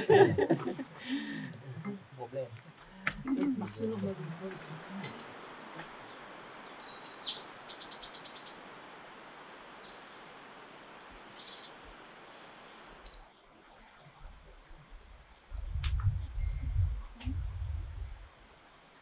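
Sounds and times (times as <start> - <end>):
background hiss: 0.0 - 19.0
small bird chirping: 6.0 - 8.7, 11.0 - 11.7.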